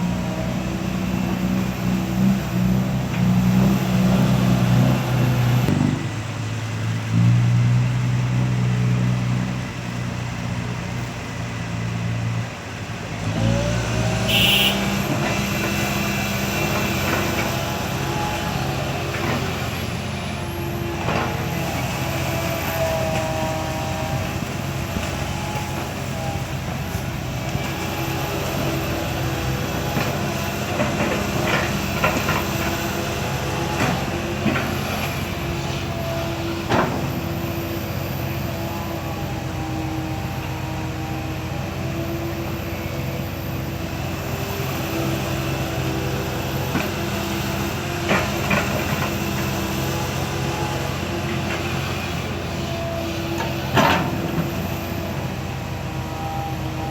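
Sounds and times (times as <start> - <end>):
excavator engine under load: 0.0 - 56.9.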